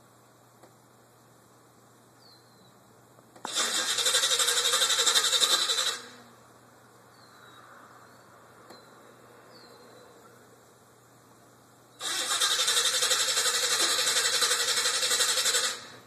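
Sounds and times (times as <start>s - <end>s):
starter cranking engine: 3.4s - 6.1s, 12.0s - 16.0s.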